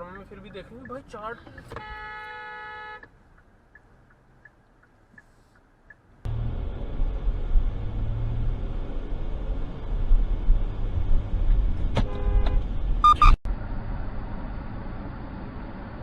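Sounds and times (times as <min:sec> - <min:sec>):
car road and engine rumble: 0:00.0 - 0:16.0
car horn honking: 0:01.7 - 0:03.1, 0:12.0 - 0:13.3.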